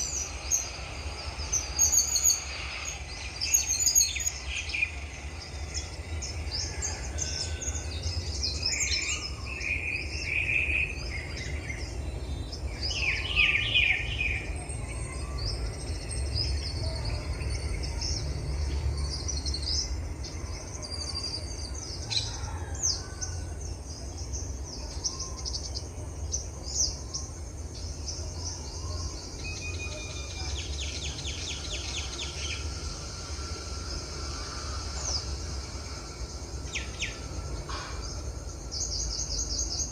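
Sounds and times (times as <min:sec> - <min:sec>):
birds chirping and singing: 0:00.0 - 0:39.9
bird trill: 0:26.6 - 0:39.9.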